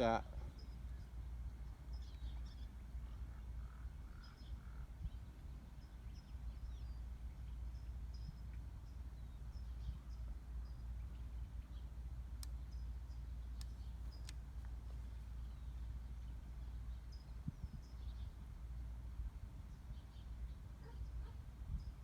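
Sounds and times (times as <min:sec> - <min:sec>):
birds chirping: 0:00.0 - 0:22.0
sharp clicks: 0:12.4 - 0:12.6, 0:13.6 - 0:14.8.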